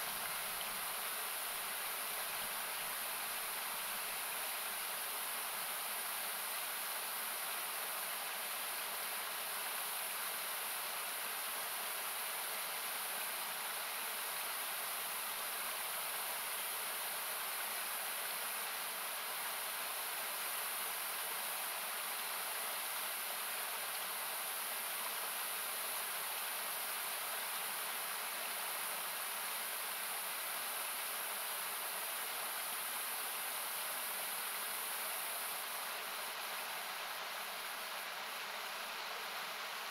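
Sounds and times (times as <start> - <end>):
river rushing: 12.1 - 39.9.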